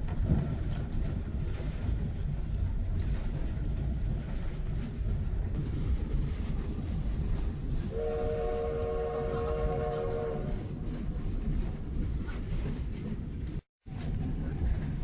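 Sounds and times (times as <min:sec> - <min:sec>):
train rumbling: 0:00.0 - 0:15.0
locomotive whistle blast: 0:07.9 - 0:10.6.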